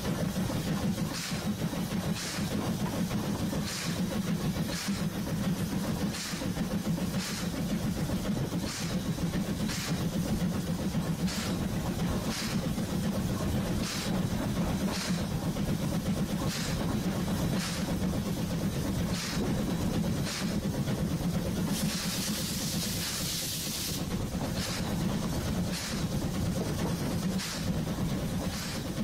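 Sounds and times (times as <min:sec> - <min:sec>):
train rumbling slowly: 0:00.0 - 0:29.0.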